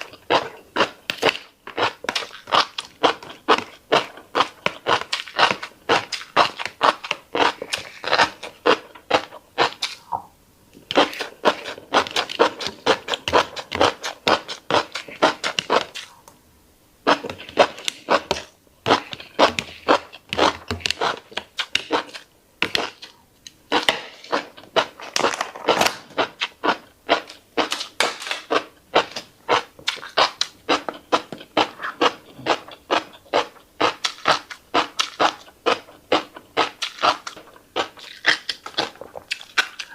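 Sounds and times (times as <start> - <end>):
wet chewing clicks and pops: 17.1 - 39.9.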